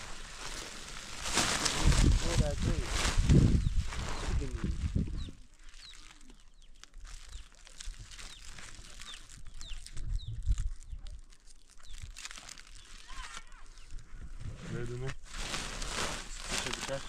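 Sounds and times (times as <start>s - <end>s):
small bird chirping: 4.4s - 14.2s.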